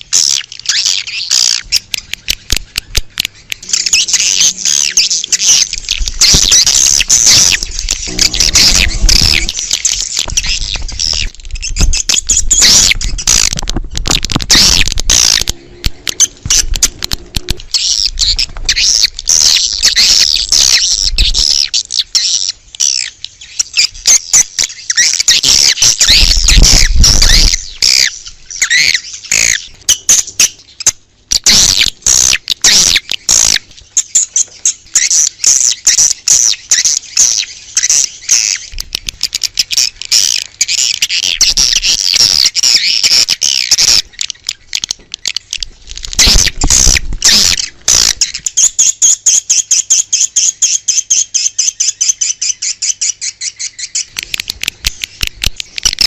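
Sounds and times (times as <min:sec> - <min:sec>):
swiftlets twittering: 0:03.6 - 0:21.7.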